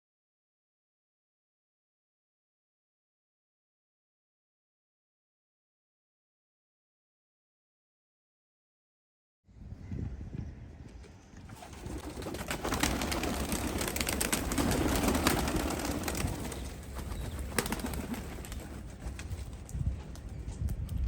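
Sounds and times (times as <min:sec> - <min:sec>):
pigeon wings flapping: 0:11.5 - 0:20.4.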